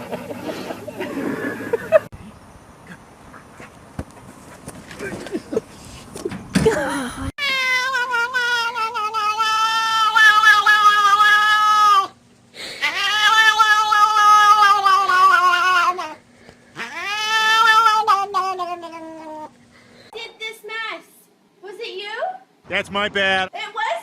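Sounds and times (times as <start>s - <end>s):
cat yowling: 7.4s - 12.2s, 12.8s - 16.2s, 16.8s - 19.5s.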